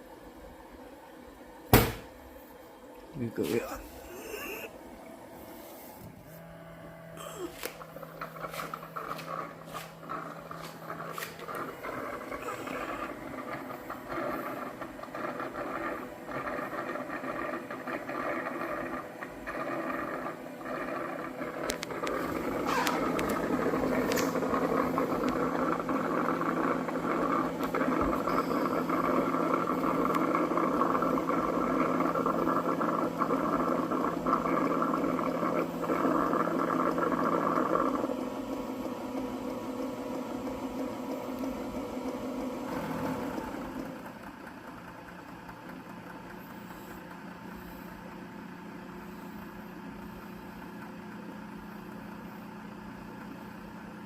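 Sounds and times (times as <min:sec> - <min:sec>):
docking station mechanical whirr: 0:21.1 - 0:30.8, 0:38.1 - 0:53.3.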